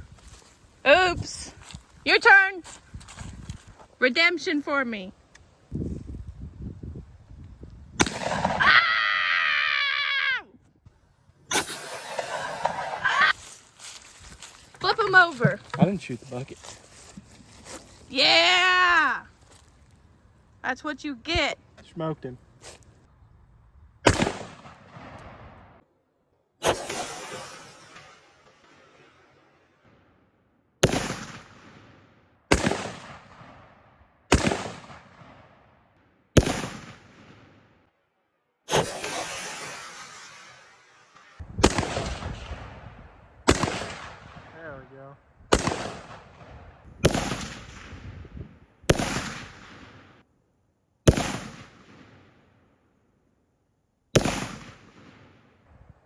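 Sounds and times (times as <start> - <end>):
gunshots with echo: 24.0 - 25.2, 30.8 - 31.7, 32.5 - 33.6, 34.3 - 35.4, 36.4 - 37.2, 41.6 - 42.8, 43.5 - 44.6, 45.5 - 48.0, 48.9 - 50.0, 51.1 - 51.9.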